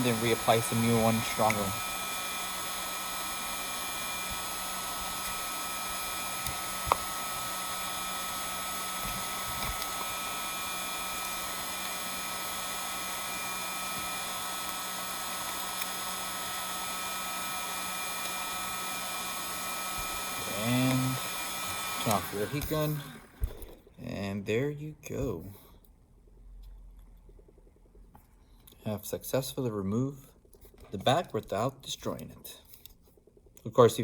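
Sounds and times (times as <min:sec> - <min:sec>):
heat gun blowing with whine: 0:00.0 - 0:23.9.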